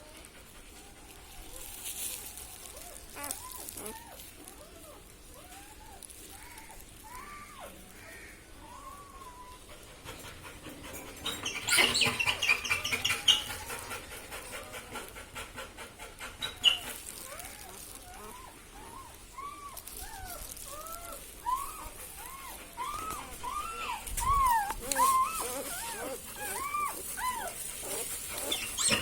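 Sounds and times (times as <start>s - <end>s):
puppies squeaking: 1.6s - 7.8s, 10.9s - 14.7s, 16.4s - 29.0s.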